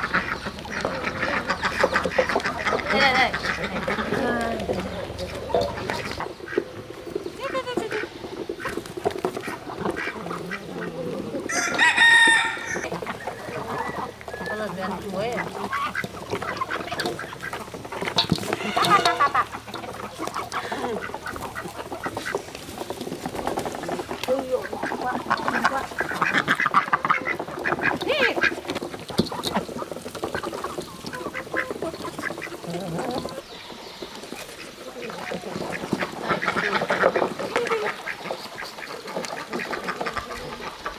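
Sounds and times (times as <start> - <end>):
ducks and geese calling: 0.0 - 40.9
rooster crowing: 11.5 - 12.9.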